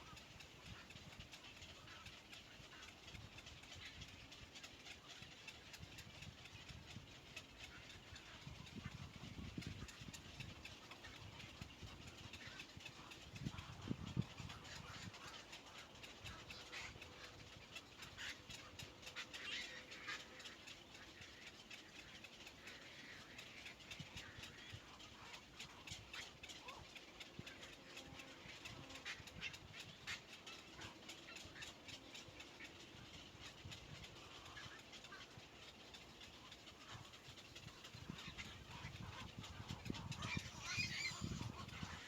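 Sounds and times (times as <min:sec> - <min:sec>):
low background hiss: 0:00.0 - 0:42.0
birds chirping: 0:34.2 - 0:42.0.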